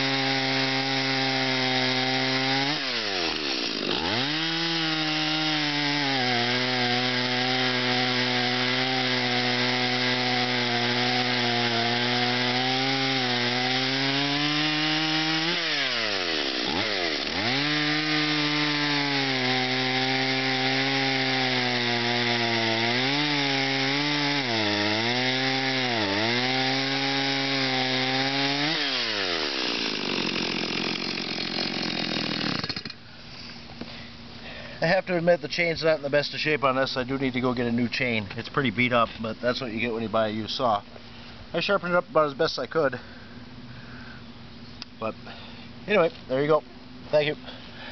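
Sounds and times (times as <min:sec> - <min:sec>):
chainsaw running at high revs: 0:00.0 - 0:33.0.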